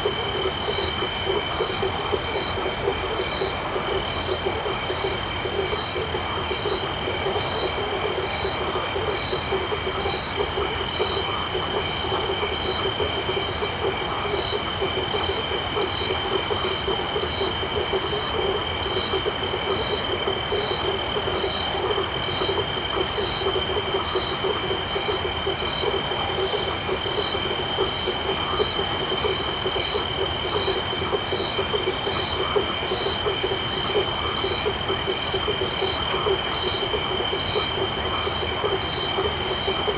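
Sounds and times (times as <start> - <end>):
frogs pulsing: 0.0 - 39.9.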